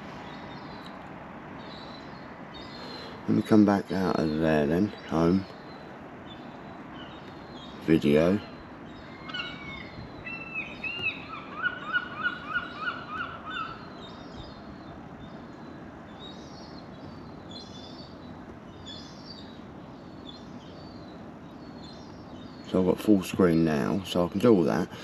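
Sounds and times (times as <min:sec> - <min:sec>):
low background noise: 0:00.0 - 0:25.0
bird harsh calls: 0:01.6 - 0:25.0
high bird chirps: 0:08.9 - 0:14.6.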